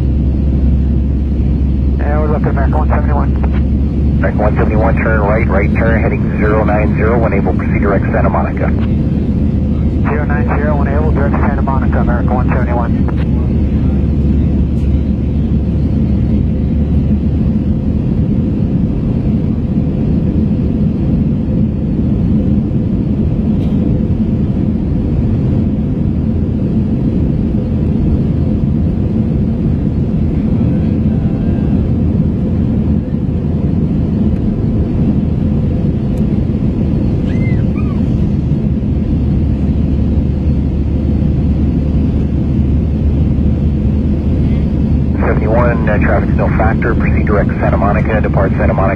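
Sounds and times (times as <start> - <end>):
faint steady hum: 0.0 - 13.5, 43.2 - 48.9
jet cabin engine drone: 0.0 - 48.9.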